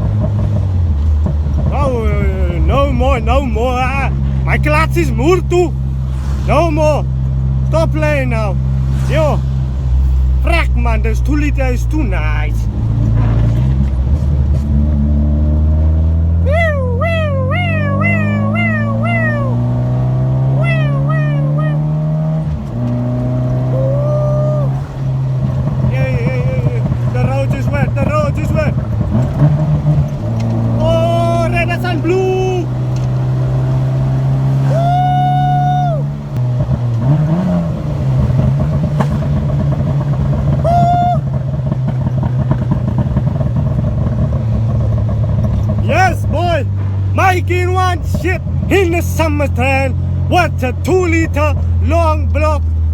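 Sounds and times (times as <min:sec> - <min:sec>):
car engine running under load: 0:00.0 - 0:52.9
siren yelping: 0:16.4 - 0:22.4, 0:23.6 - 0:24.8, 0:34.6 - 0:36.2.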